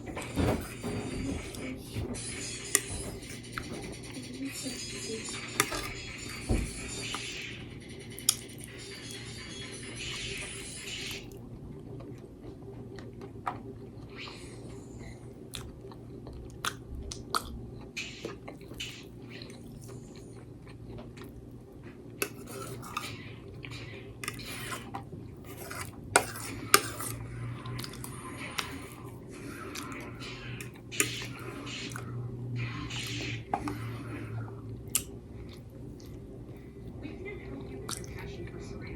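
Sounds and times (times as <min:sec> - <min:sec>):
chewing: 0:11.3 - 0:32.1, 0:33.0 - 0:36.6, 0:37.6 - 0:38.3.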